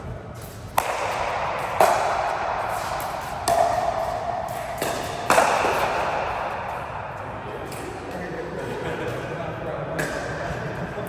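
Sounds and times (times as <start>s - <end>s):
racket striking ball: 0.3s - 8.3s, 10.0s - 10.8s.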